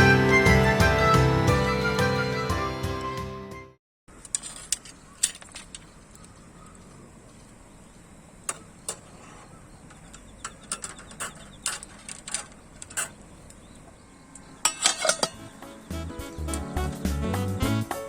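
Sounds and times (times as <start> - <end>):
background music: 0.0 - 3.8, 15.2 - 18.0
metal items clinking: 4.1 - 7.5, 8.5 - 15.7.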